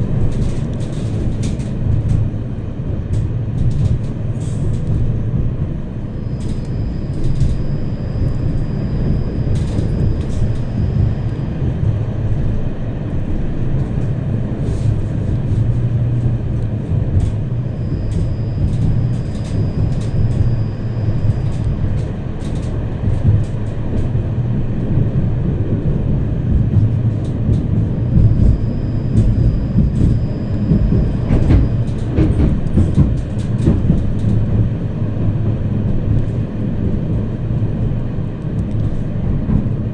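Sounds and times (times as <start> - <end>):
tram rumbling on rails: 0.0 - 39.9
thin high whine: 6.1 - 13.0, 17.3 - 22.8, 27.3 - 33.0.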